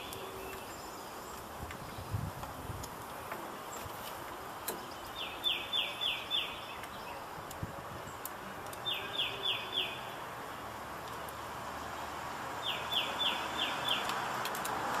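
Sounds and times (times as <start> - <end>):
background hiss: 0.0 - 15.0
songbird chirping: 0.0 - 15.0
faint small clicks: 13.8 - 15.0.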